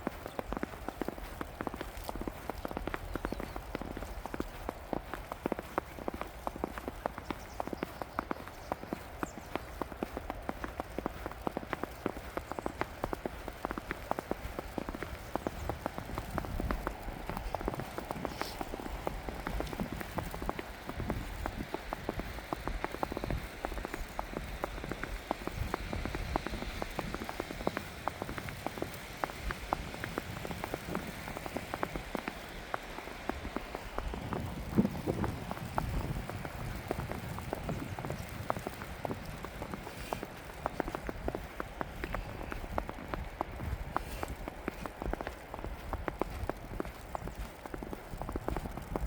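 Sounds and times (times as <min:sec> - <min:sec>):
rain falling: 0:00.0 - 0:03.0, 0:10.0 - 0:49.0.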